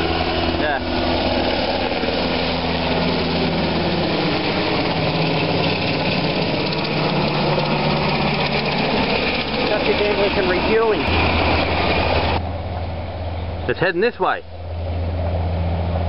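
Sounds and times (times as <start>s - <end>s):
helicopter engines and rotor: 0.0s - 16.0s.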